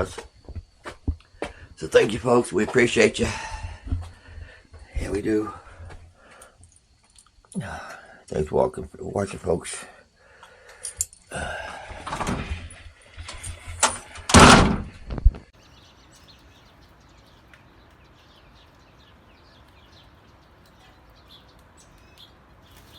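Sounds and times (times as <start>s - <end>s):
faint steady hiss: 0.0s - 14.4s
knocks and rustling: 11.8s - 15.5s
door shutting thud: 12.0s - 12.7s, 13.3s - 15.4s.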